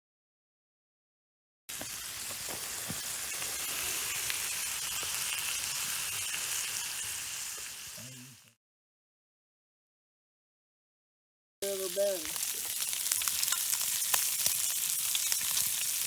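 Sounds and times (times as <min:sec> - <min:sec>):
food sizzling in frying pan: 0:01.7 - 0:08.5, 0:11.6 - 0:16.0.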